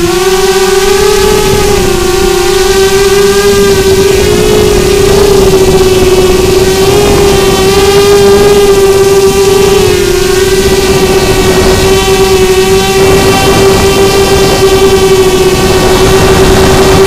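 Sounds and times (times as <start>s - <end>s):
low rushing noise: 0.0s - 17.0s
quadcopter motors whining: 0.0s - 17.0s.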